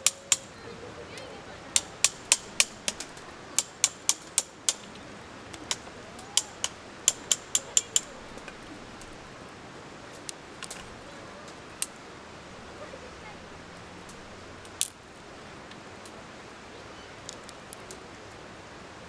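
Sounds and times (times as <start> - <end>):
sharp taps or knocks: 1.8 - 5.0, 5.6 - 8.6.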